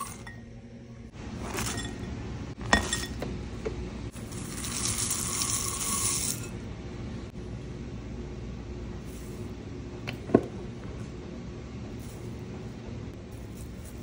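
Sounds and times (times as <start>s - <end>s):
dry seeds pouring into bowl: 4.2s - 6.5s.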